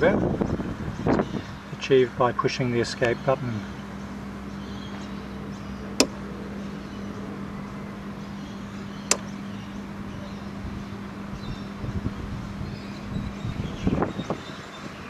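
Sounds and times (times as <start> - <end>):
wind rumble: 0.0 - 1.8, 5.3 - 15.0
steady low hum: 0.0 - 15.0.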